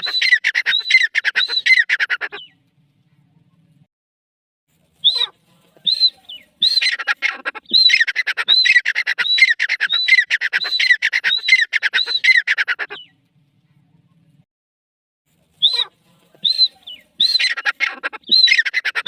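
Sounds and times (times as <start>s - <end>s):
francolin harsh rasping calls: 5.0s - 13.1s, 15.6s - 19.0s.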